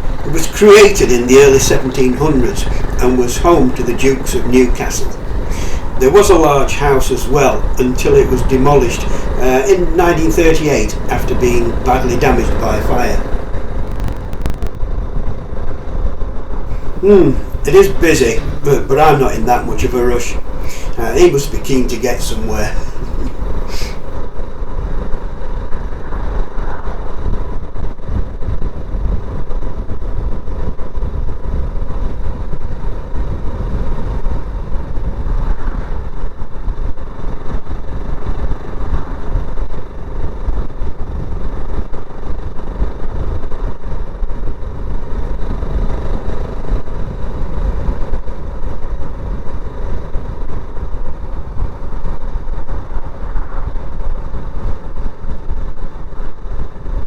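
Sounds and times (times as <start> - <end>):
wind rumble on microphone: 0.0 - 18.7, 22.7 - 57.0.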